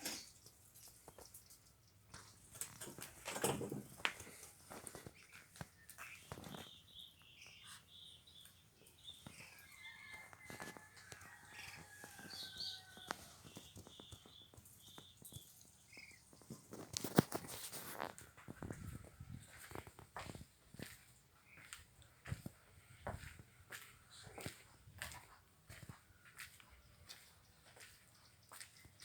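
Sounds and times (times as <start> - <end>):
duck bills pecking and dabbling: 0.0 - 18.7.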